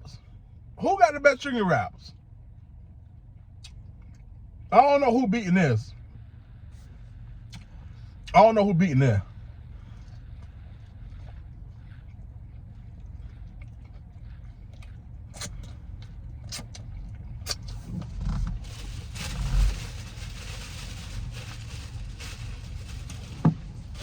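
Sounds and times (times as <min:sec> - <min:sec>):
steady low hum: 0:00.0 - 0:24.0
person chewing food: 0:11.2 - 0:17.8.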